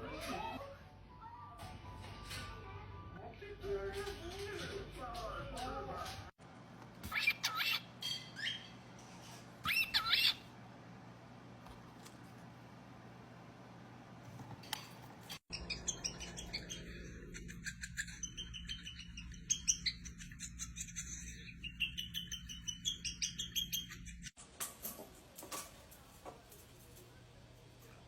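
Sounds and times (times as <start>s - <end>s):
birds chirping and twittering: 9.7s - 10.5s, 15.4s - 24.4s.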